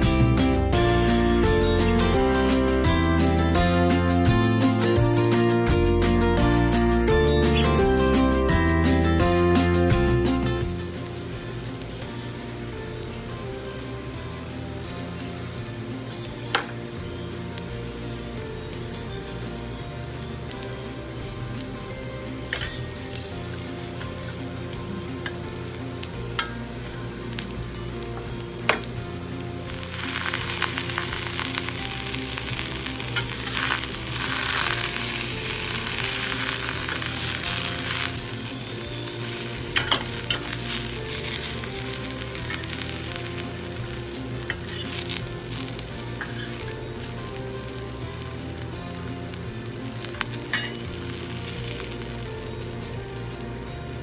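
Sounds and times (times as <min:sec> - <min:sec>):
food sizzling in a pan: 0:00.0 - 0:54.0.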